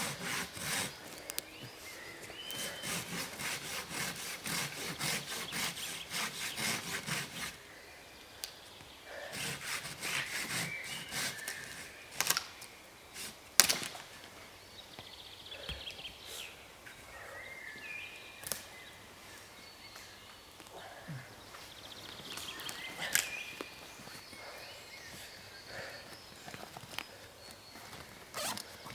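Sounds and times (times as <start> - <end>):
hand saw cutting wood: 0.0 - 1.2, 2.3 - 7.6, 9.3 - 12.4, 13.2 - 13.9.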